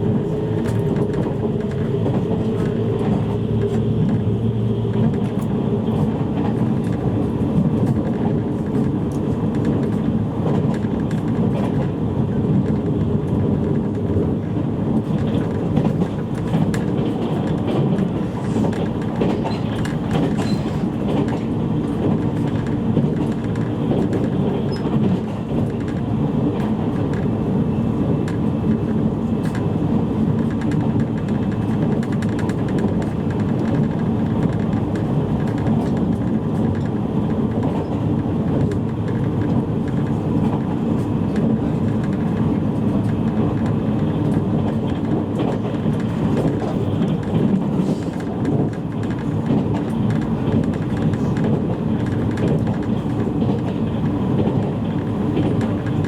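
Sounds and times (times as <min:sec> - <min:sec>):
faint rail clicks: 0:00.0 - 0:27.5, 0:28.2 - 0:56.0
train wheels rumbling on rail: 0:00.0 - 0:56.0.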